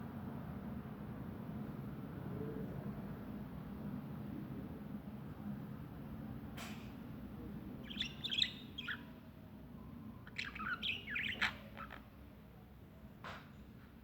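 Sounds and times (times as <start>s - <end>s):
small bird twittering: 7.8s - 9.2s, 10.3s - 12.1s.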